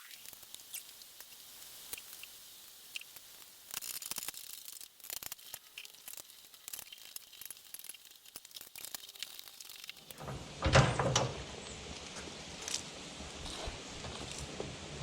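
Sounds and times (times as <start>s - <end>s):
small parts and tools clicking: 0.0s - 10.2s.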